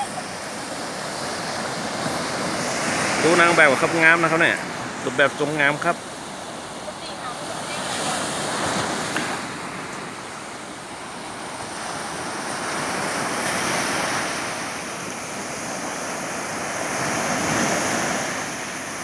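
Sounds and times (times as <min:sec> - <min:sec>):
sea waves washing ashore: 0:00.0 - 0:19.0.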